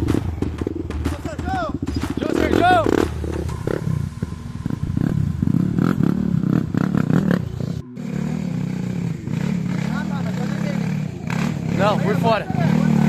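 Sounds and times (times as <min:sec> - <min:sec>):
knocks and clatter: 0:00.0 - 0:03.6
dirt bike engine revving: 0:00.0 - 0:13.0.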